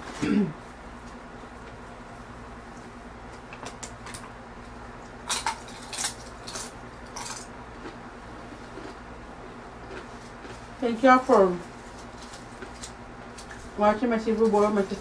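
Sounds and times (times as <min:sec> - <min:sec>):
chip crunching: 0:03.3 - 0:09.1, 0:09.7 - 0:14.6.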